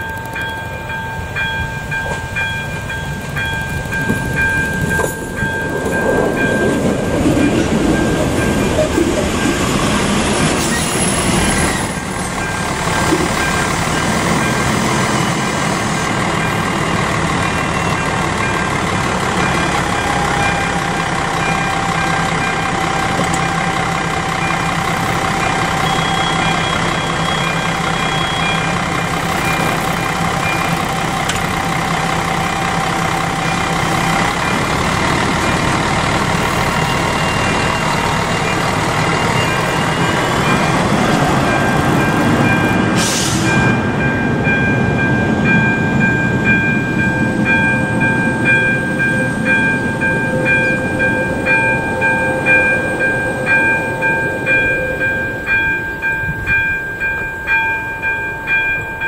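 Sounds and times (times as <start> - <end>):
diesel railcar engine: 0.0 - 59.0
level crossing warning bell: 0.0 - 59.0
brake squeal: 8.0 - 15.9, 22.6 - 30.8.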